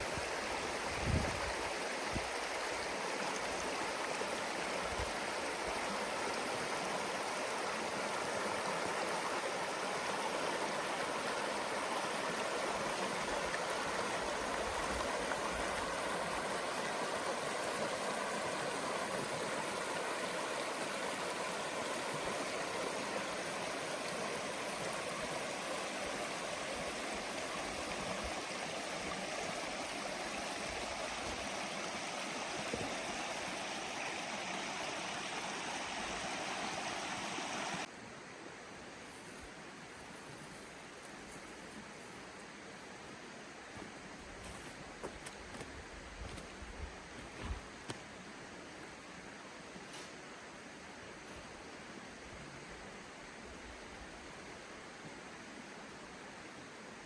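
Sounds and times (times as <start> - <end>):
river flowing over rocks: 0.0 - 39.8.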